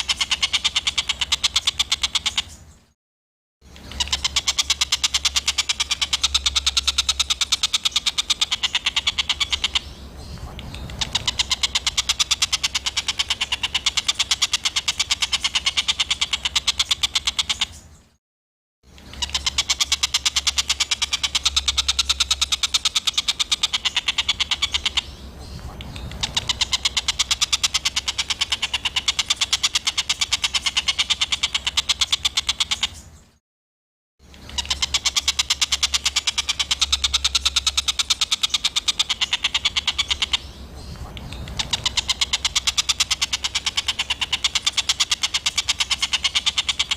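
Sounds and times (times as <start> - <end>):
rapid rattling bird chatter: 0.0 - 2.9, 3.6 - 18.2, 18.9 - 33.4, 34.2 - 46.9.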